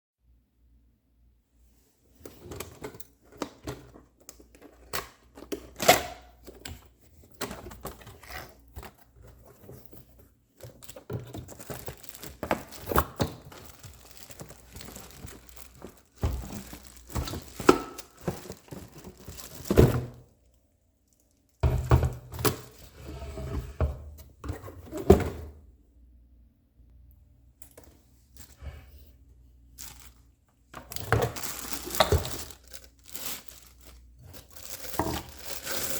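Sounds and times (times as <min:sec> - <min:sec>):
cardboard and wrapping tearing: 0:11.4 - 0:20.2, 0:31.0 - 0:35.9.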